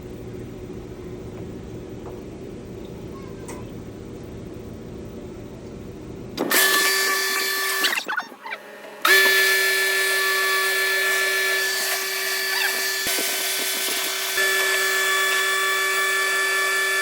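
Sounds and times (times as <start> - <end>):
electric motor whining: 6.4 - 17.0.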